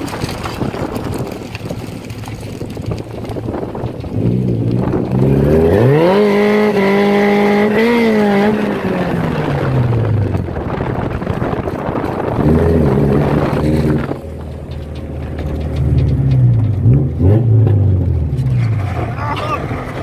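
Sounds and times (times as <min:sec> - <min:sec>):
car engine revving: 0:00.0 - 0:20.0
road noise: 0:00.0 - 0:20.0.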